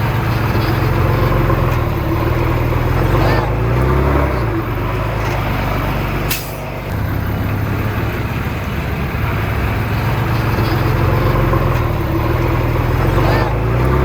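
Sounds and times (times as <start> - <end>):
heavy diesel engine running: 0.0 - 14.0
short sharp hiss: 6.3 - 6.7.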